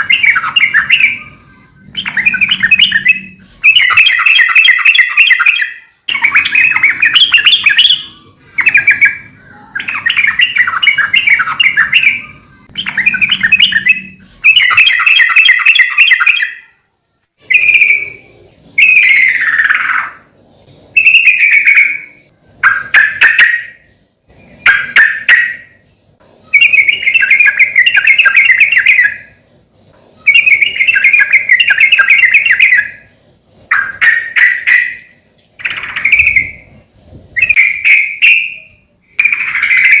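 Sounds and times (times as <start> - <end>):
bulbul singing chattering phrases: 0.0 - 16.7, 17.4 - 29.4, 30.2 - 33.1.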